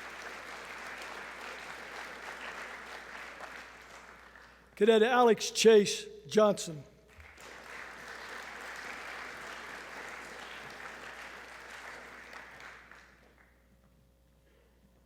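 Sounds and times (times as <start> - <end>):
audience applauding: 0.0 - 4.8, 7.1 - 13.5.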